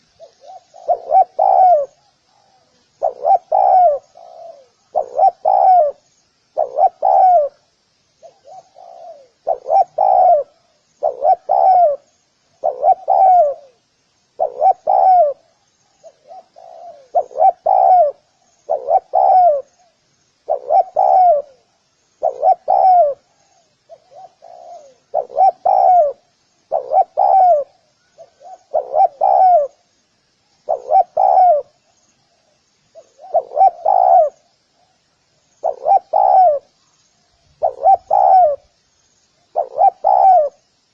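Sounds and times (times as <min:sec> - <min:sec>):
dove cooing: 0:00.0 - 0:29.8, 0:30.6 - 0:31.9, 0:32.9 - 0:35.0, 0:35.6 - 0:36.8, 0:37.5 - 0:38.7, 0:39.5 - 0:40.6
small birds twittering: 0:00.0 - 0:40.9.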